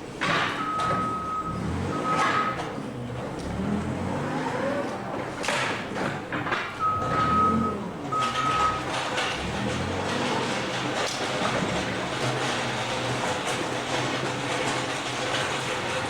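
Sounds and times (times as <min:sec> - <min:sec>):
baler machine rumbling and clanking: 0:00.0 - 0:16.0
long electronic beeps: 0:06.8 - 0:08.9.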